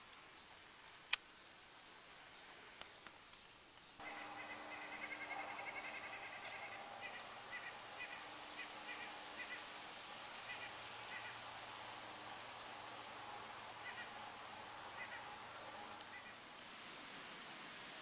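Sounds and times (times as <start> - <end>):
bird chirping: 0.4 - 16.4
faint low hum: 3.9 - 18.0.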